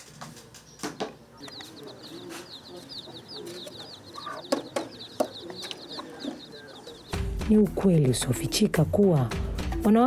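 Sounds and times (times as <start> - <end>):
chickens clucking: 0.0 - 8.5
bird chirping rapidly: 0.6 - 7.4
sharp knocks: 4.5 - 6.1.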